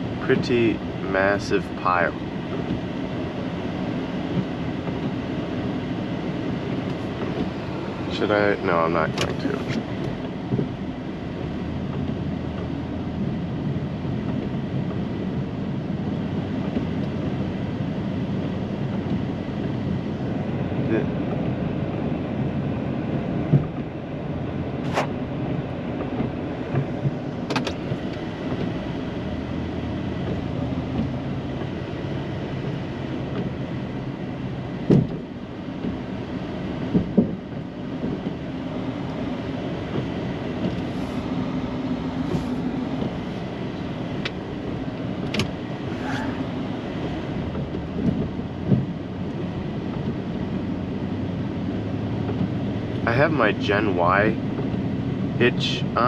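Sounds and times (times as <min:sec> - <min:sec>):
truck engine running under load: 0:36.7 - 0:50.1.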